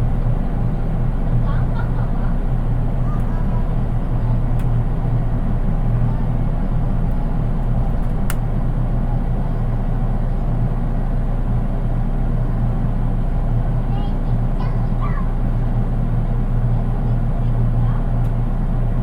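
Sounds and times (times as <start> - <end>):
train wheels rumbling on rails: 0.0 - 11.9.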